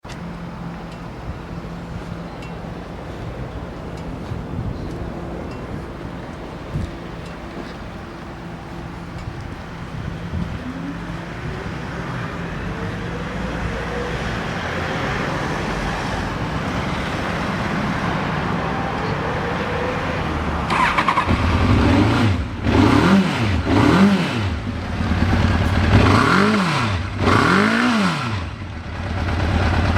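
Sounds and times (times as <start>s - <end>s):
motorcycle engine idling and revving: 5.7s - 29.9s.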